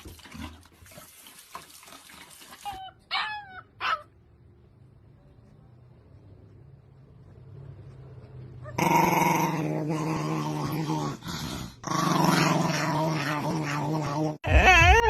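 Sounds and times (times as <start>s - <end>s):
dog growling: 8.6s - 14.5s.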